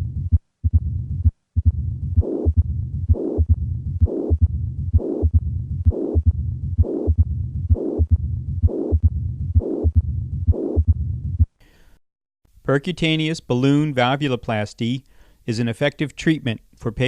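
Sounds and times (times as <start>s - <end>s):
heartbeat with murmur: 0.0s - 11.6s.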